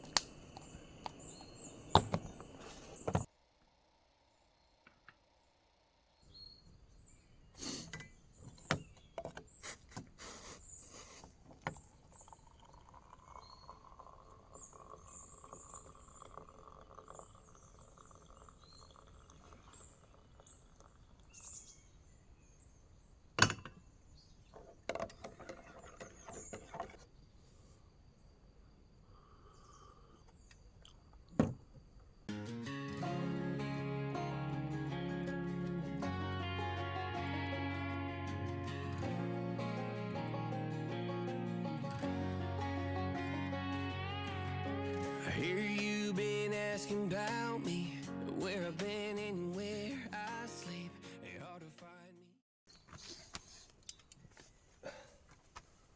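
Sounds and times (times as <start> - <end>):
small birds chirping: 0.0 - 3.3, 6.2 - 27.6, 29.3 - 31.1.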